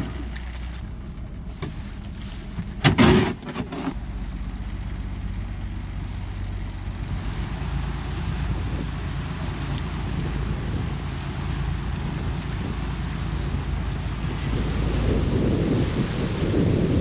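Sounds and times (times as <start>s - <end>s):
boat engine humming: 0.0s - 17.0s
rushing burst of wind or water: 7.0s - 17.0s.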